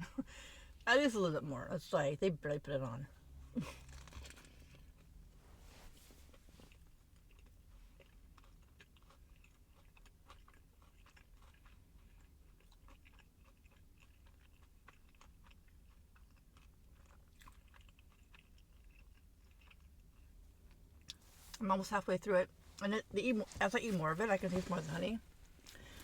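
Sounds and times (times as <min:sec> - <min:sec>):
crunchy chewing: 0:03.6 - 0:05.2, 0:06.0 - 0:21.6, 0:23.8 - 0:26.0.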